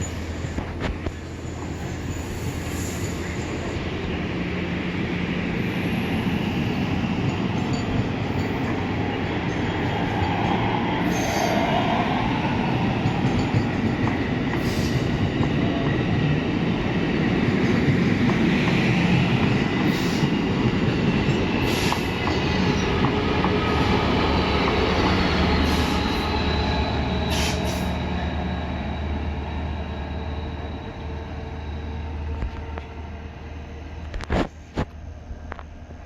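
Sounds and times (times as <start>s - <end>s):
sharp clicks of rail cars: 0.0s - 3.8s, 6.6s - 16.4s, 17.4s - 26.4s
train wheels rumbling on rails: 0.0s - 36.0s.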